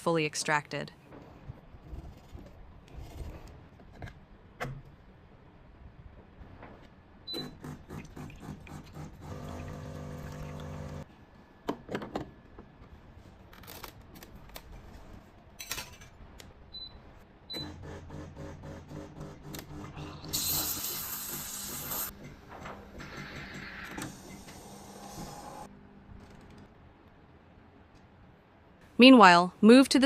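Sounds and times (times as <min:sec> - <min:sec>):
espresso machine pump humming: 0:08.7 - 0:11.0
loud burst of hissing: 0:20.4 - 0:22.1.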